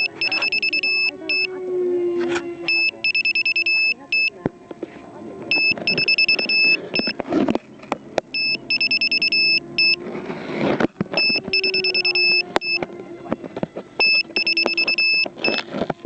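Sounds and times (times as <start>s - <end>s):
electronic alarm beeping: 0.0s - 1.5s, 2.6s - 4.4s, 5.5s - 7.2s, 8.3s - 10.0s, 11.2s - 12.8s, 14.0s - 15.6s.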